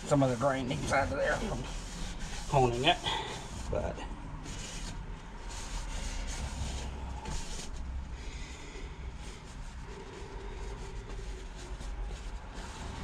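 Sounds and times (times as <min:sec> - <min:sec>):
rag rubbing metal cylinder: 0:00.0 - 0:03.8
steady low hum: 0:00.0 - 0:13.0.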